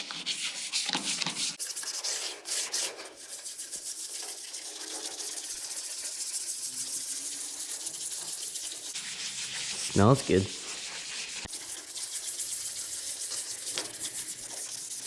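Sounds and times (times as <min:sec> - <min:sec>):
toothbrush scrubbing plastic: 0:00.0 - 0:15.0.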